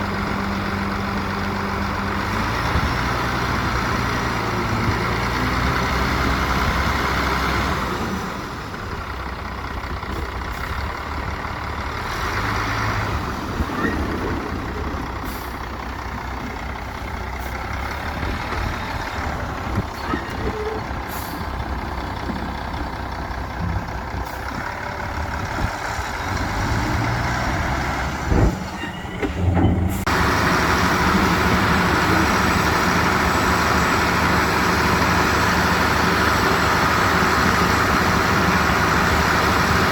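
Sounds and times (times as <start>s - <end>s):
heavy machinery diesel engines: 0.0s - 39.9s.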